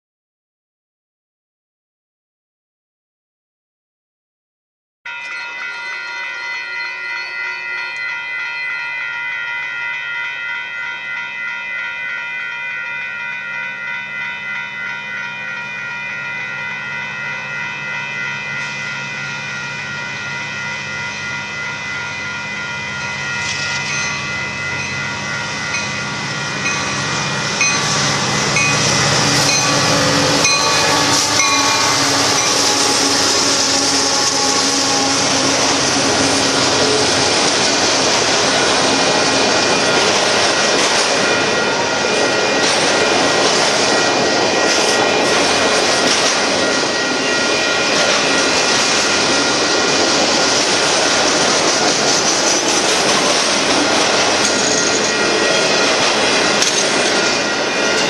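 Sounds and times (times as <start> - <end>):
crossing warning bell ringing: 5.1 - 58.0
freight cars rolling on rails: 5.1 - 58.0
locomotives passing: 22.8 - 58.0.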